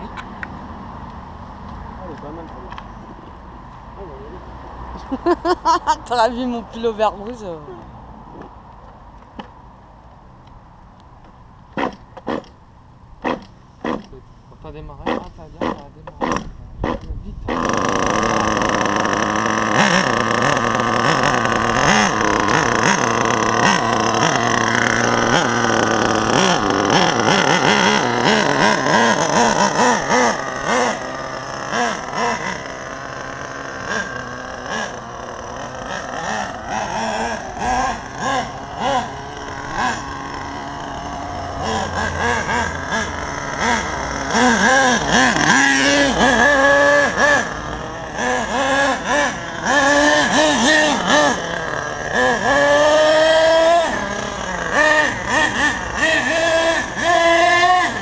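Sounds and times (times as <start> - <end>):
nitro rc engine revving: 11.7 - 12.6, 13.2 - 58.0.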